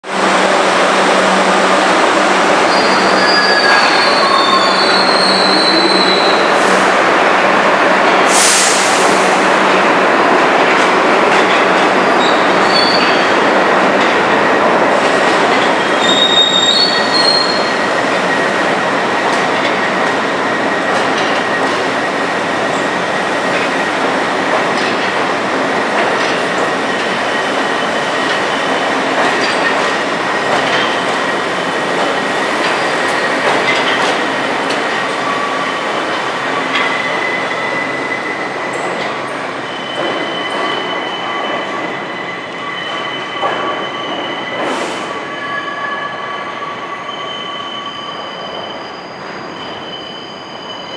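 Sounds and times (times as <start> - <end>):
subway train wheels on rails: 0.0 - 50.9
high-pitched wheel squeals: 2.7 - 6.5, 12.1 - 13.3, 15.8 - 18.5.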